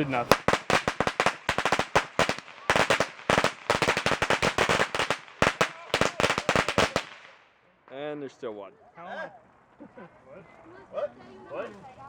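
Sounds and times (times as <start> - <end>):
firecrackers popping: 0.0 - 8.0.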